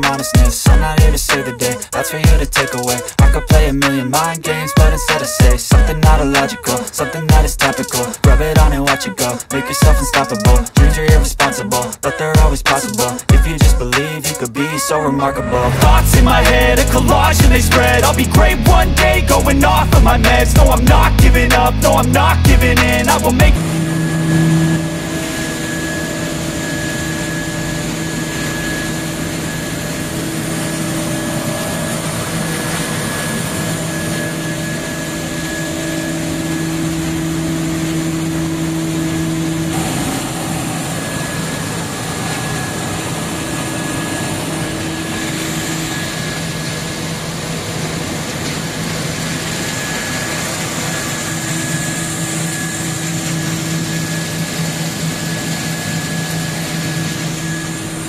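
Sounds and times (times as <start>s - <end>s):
mechanical drone with low hum: 0.0s - 14.1s, 15.4s - 58.0s
faint high whine: 15.0s - 58.0s.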